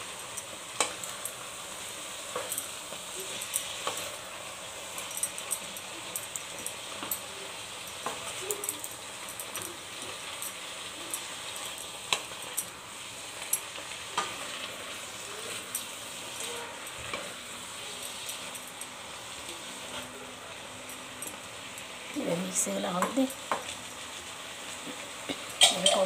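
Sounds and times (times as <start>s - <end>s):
vegetables sizzling in a pan: 0.0s - 26.0s.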